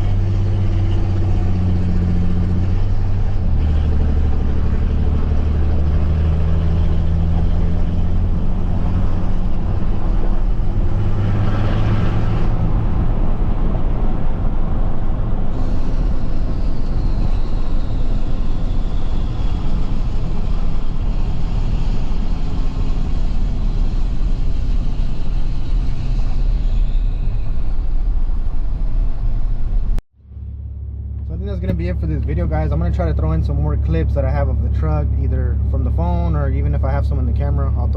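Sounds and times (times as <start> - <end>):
diesel pickup truck engine: 0.0 - 37.9.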